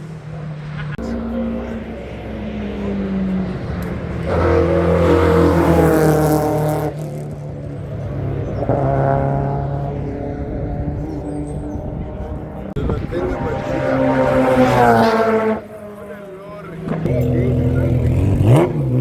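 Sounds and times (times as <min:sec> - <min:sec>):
engine revving: 0:00.0 - 0:19.0
race car accelerating hard: 0:00.0 - 0:19.0
engine idling: 0:15.6 - 0:18.6.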